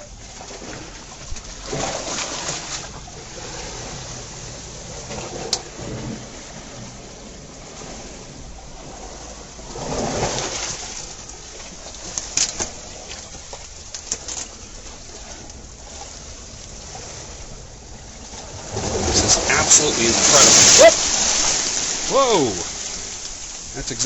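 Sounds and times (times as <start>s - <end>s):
sea waves washing into rocks: 0.0s - 24.0s
sharp splashes: 18.4s - 24.0s.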